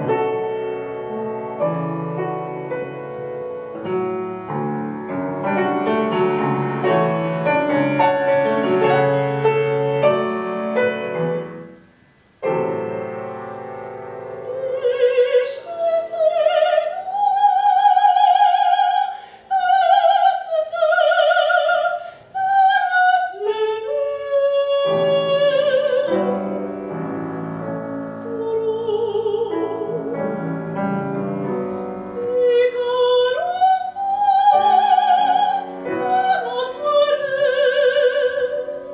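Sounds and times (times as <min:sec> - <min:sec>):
piano playing: 0:00.0 - 0:38.9
soprano singing with vibrato: 0:14.3 - 0:38.9.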